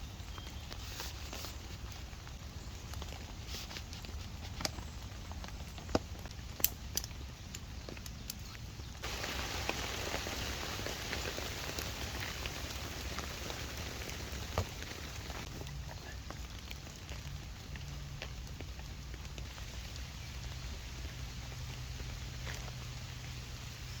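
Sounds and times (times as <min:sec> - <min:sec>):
raindrop ticks and taps: 0:04.6 - 0:19.6
rain hiss: 0:06.0 - 0:24.0.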